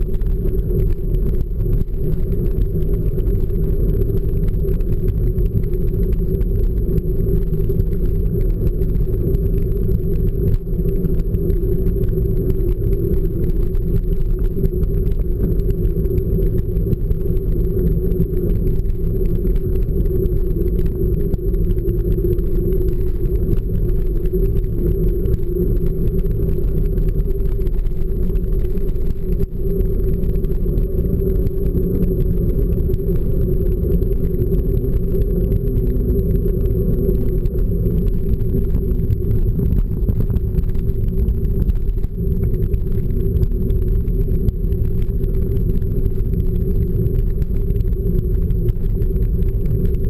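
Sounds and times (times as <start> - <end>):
constant hum: 0.0 - 50.0
wind rumble on microphone: 0.0 - 50.0.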